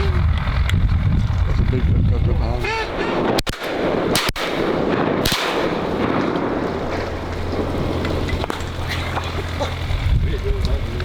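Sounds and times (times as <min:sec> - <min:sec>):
shotgun shot: 0:03.2 - 0:07.0.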